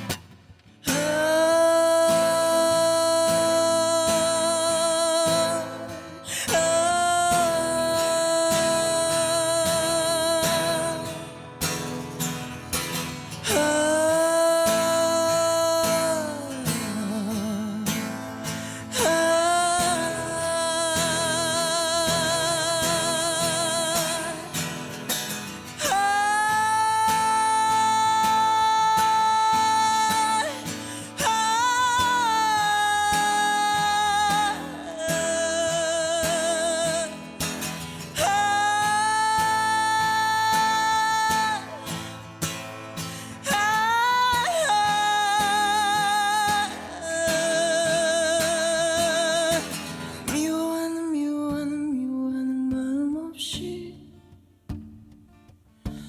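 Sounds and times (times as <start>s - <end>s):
acoustic guitar: 0.0s - 56.0s
person singing long notes: 0.8s - 11.2s, 18.9s - 24.6s, 25.8s - 42.2s, 43.1s - 54.0s.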